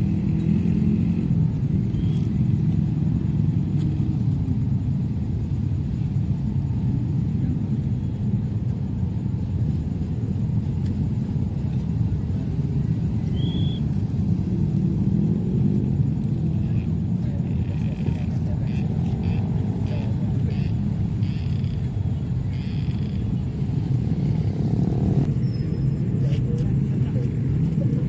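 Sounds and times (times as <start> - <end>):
jet engines rumbling: 0.0 - 28.0.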